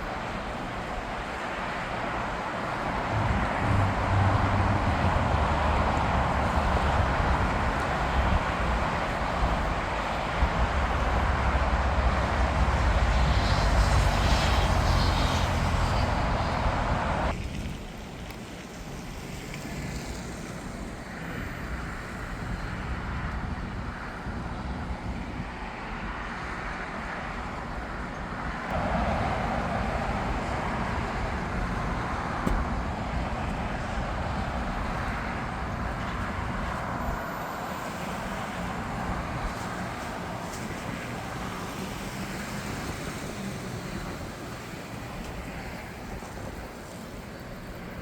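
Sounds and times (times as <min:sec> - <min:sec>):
jet engines rumbling: 0:00.0 - 0:18.2, 0:28.6 - 0:48.0.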